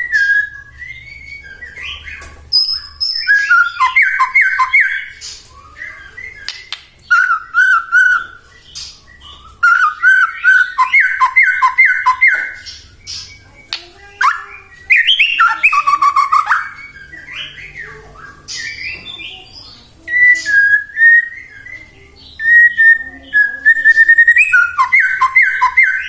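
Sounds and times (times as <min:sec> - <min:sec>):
bird singing whistled song: 0:00.0 - 0:26.0.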